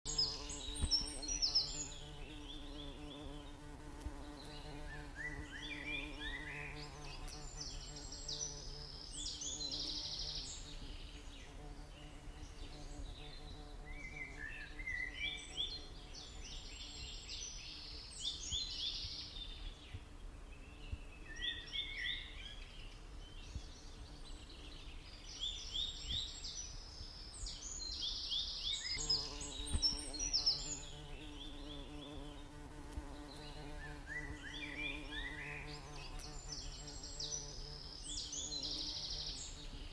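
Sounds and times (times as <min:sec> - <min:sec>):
bird chirping: 0:00.1 - 0:39.9
bees humming: 0:29.0 - 0:39.6.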